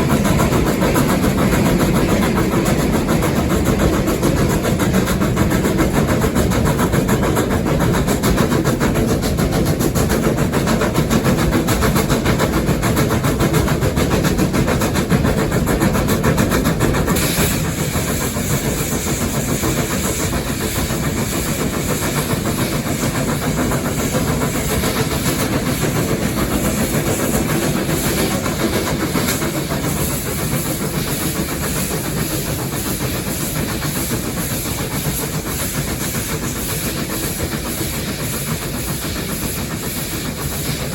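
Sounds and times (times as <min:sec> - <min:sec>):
steam hiss: 0:00.0 - 0:40.9
steam locomotive rumble and clatter: 0:00.0 - 0:40.9.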